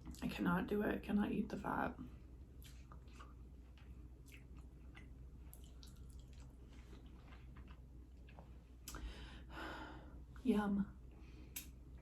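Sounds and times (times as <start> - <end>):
chewing meat: 2.4 - 9.0.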